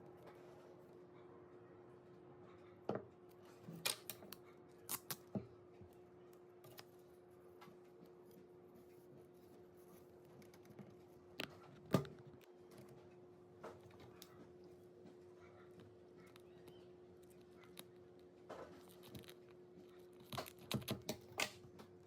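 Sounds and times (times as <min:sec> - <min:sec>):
faint steady hum: 0:00.0 - 0:22.0
scissors snipping tape: 0:04.9 - 0:05.2.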